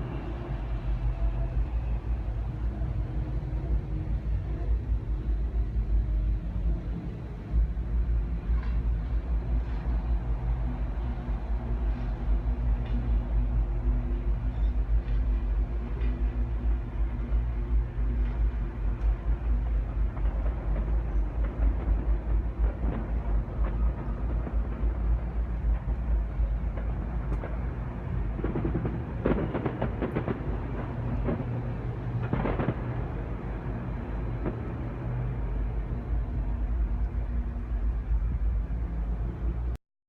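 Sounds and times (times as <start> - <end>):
deep rumbling drone: 0.0 - 39.8
crackly rough noise: 15.0 - 39.8.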